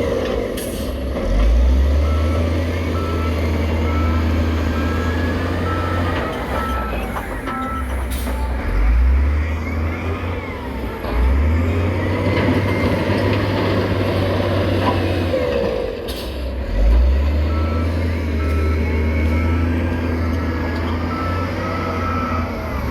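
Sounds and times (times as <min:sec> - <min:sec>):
diesel machinery engine revving: 0:00.0 - 0:22.9
reversing alarm beeping: 0:01.9 - 0:10.9, 0:17.4 - 0:22.9.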